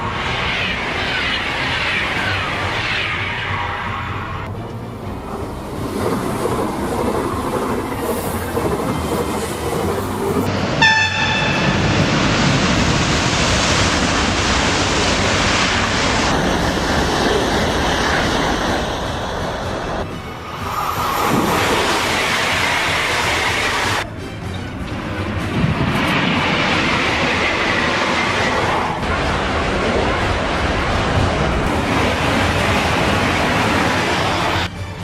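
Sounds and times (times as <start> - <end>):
train running on rails: 0.0 - 35.0
train horn blast: 10.8 - 12.2.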